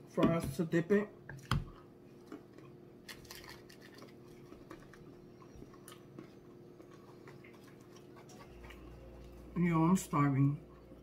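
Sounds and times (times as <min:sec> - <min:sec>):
faint steady hum: 0:00.0 - 0:11.0
chewing crispy fried food: 0:01.7 - 0:09.6.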